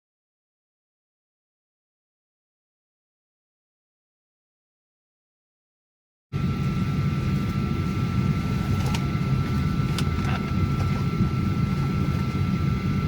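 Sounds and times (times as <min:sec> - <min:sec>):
airliner cabin hum: 0:06.4 - 0:13.0
thin steady whine: 0:06.4 - 0:13.0.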